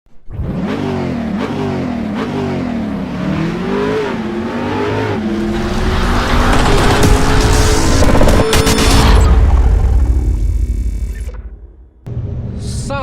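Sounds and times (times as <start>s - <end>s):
vehicle engine accelerating: 0.2s - 8.5s.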